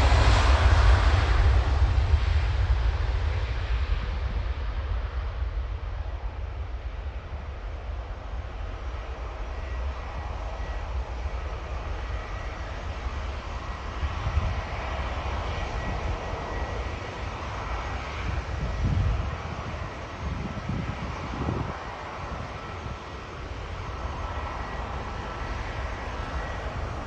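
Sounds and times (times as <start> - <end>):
jet engines rumbling: 0.0 - 27.0.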